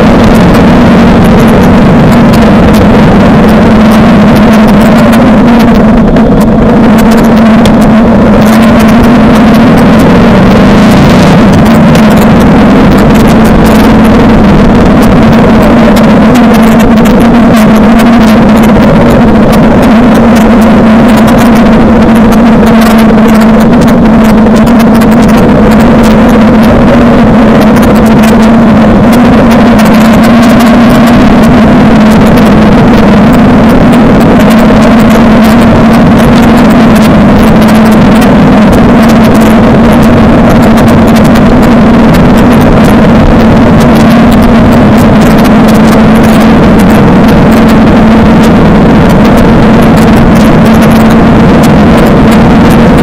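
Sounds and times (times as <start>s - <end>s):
constant crackle: 0.0s - 53.0s
motorcycle engine running: 0.0s - 53.0s.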